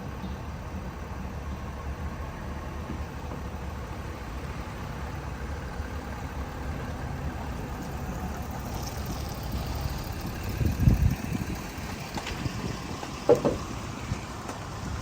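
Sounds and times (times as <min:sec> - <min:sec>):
pickup truck engine rumble: 0:00.0 - 0:15.0
tyre and road noise: 0:00.0 - 0:15.0.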